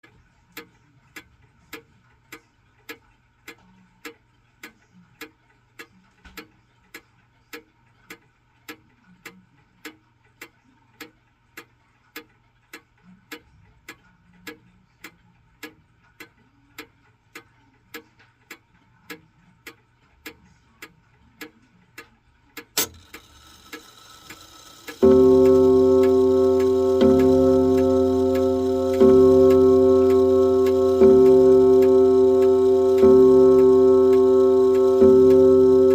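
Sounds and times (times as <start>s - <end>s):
pendulum clock ticking: 21.4s - 35.9s
clock strike mechanism click: 22.7s - 35.9s
clock mechanism whirring: 22.8s - 35.9s
gong ringing: 25.0s - 35.9s.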